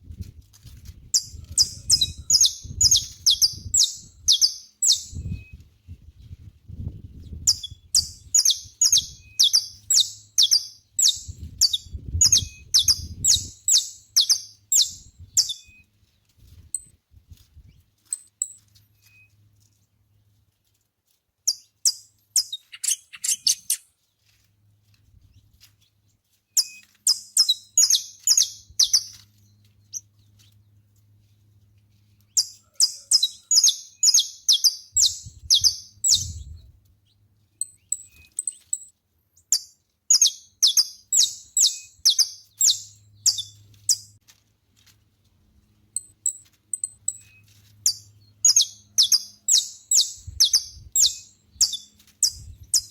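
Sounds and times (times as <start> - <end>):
finch chirping: 1.1 - 5.5, 7.5 - 15.8, 21.5 - 23.8, 26.6 - 29.2, 32.3 - 36.6, 39.5 - 44.1, 46.0 - 52.9.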